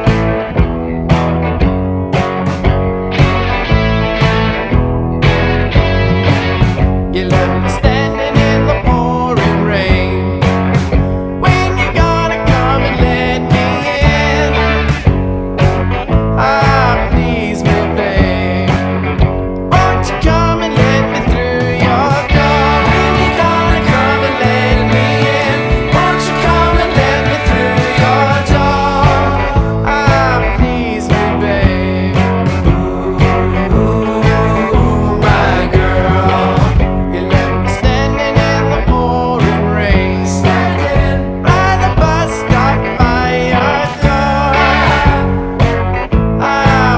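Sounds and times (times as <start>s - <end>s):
bass: 0.0s - 46.9s
drums: 0.0s - 46.9s
rock song with electric guitar: 0.0s - 46.9s
person singing: 7.1s - 10.5s, 11.4s - 15.0s, 16.4s - 19.0s, 19.7s - 45.8s, 46.4s - 46.9s.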